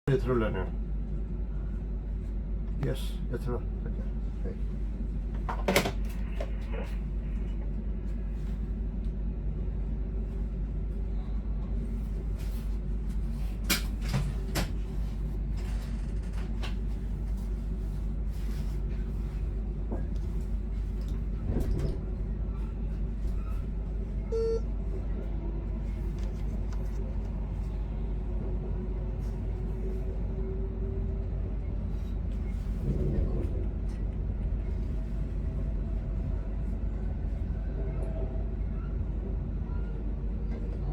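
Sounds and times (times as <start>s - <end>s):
train cab low hum: 0.0s - 40.9s
short beep: 24.3s - 24.7s.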